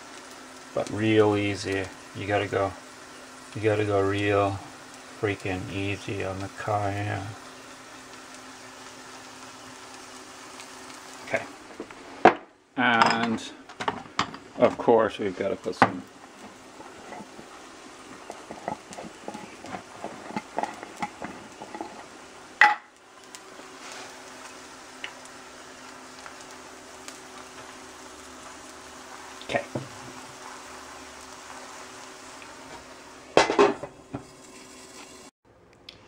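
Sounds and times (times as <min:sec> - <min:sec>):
squash frying in oil: 0:00.0 - 0:35.3
seasoning being shaken: 0:15.1 - 0:22.6, 0:23.4 - 0:33.2, 0:34.2 - 0:35.3.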